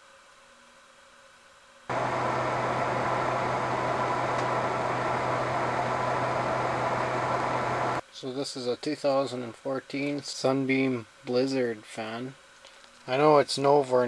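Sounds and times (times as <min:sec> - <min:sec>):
desk fan air rushing: 0:01.9 - 0:08.0
low motor hum: 0:01.9 - 0:08.0.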